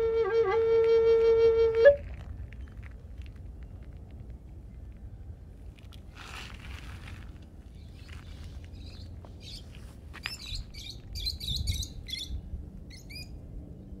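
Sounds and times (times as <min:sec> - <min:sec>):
steady low rumble: 0:00.0 - 0:14.0
small birds chirping: 0:07.7 - 0:13.4.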